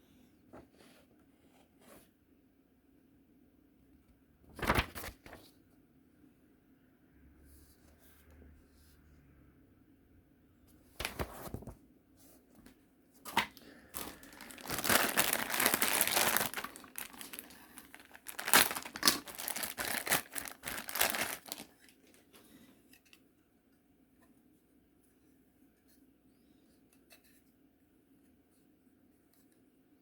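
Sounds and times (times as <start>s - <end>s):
plastic packaging crinkling: 13.9s - 22.2s.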